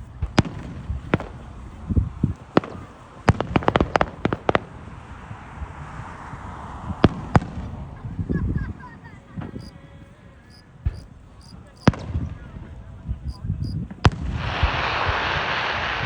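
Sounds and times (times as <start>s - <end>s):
low fireworks booms: 0.0s - 8.8s, 10.5s - 16.0s
rapid fireworks cracks: 2.4s - 5.0s, 13.6s - 16.0s
fireworks bangs: 13.3s - 16.0s.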